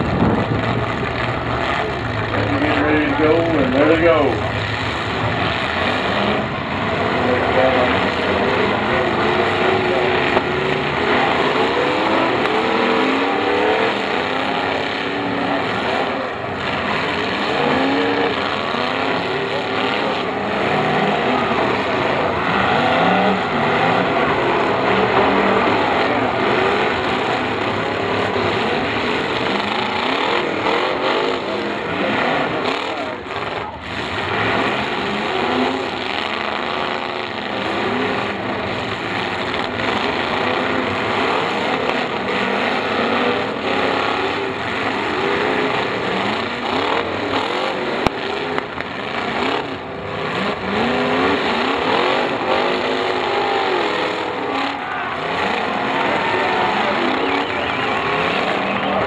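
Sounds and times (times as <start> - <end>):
car engines revving: 0.0 - 59.0
cars ramming: 0.0 - 59.0.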